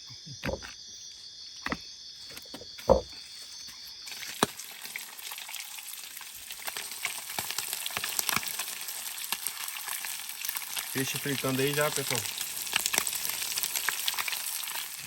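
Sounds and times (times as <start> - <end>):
knocks: 0.4 - 0.8, 2.5 - 3.2
oil sizzling and popping: 4.0 - 15.0
fish frying in hot oil: 4.1 - 15.0.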